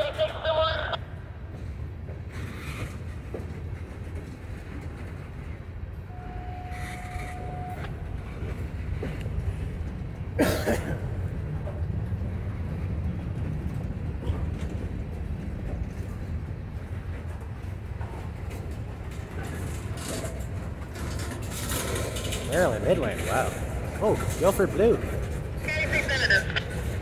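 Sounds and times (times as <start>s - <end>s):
freight cars rumbling on rails: 0.0s - 27.0s.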